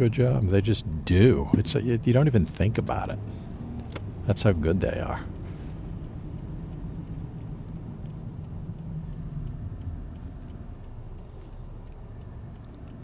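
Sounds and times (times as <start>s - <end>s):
car engine and tyres rumbling: 0.0s - 13.0s
faint light ticks: 4.8s - 13.0s.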